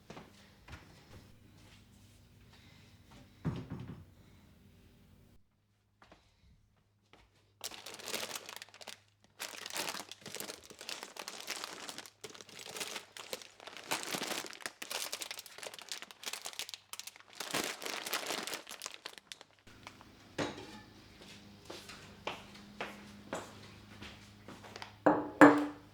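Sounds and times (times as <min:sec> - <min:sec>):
crinkly material crumpling: 0:07.6 - 0:20.2.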